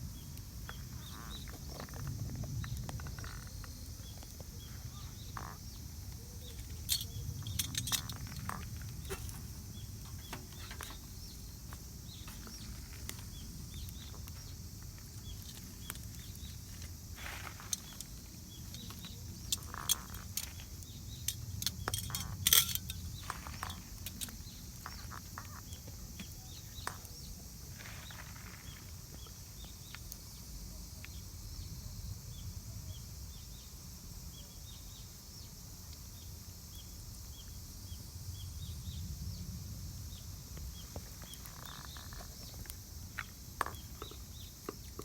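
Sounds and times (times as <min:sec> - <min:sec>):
small bird chirping: 0:00.1 - 0:30.1, 0:40.1 - 0:45.0
sharp clicks and knocks: 0:21.3 - 0:24.4.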